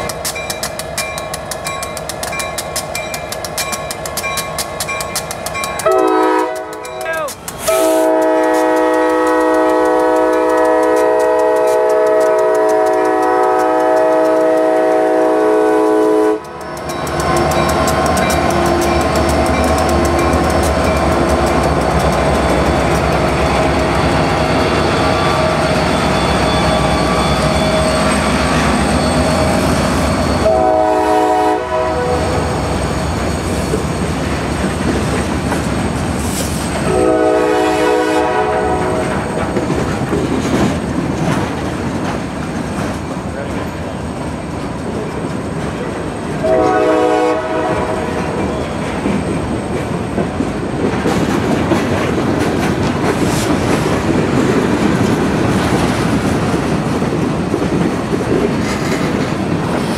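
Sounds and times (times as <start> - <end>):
locomotive engines rumbling: 0.0 - 59.9
wheels clacking on rails: 0.0 - 59.9
locomotive air horn blast: 5.9 - 6.8, 7.6 - 16.5, 30.4 - 32.4, 36.8 - 39.1, 46.4 - 48.4.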